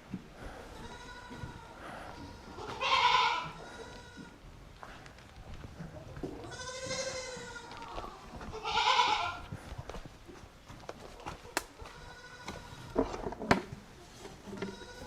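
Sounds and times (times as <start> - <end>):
goats bleating: 0.6 - 4.4, 6.4 - 9.5, 11.8 - 13.1, 14.5 - 15.0.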